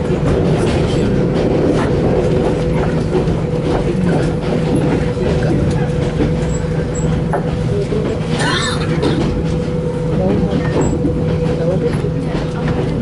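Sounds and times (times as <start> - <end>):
train rumble inside carriage: 0.0 - 13.0.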